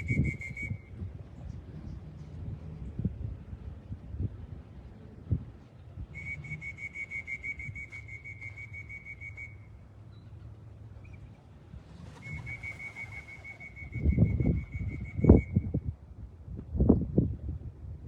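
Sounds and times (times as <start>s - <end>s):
trilling whistle blasts: 0.0s - 0.9s, 6.1s - 9.7s, 12.2s - 15.7s.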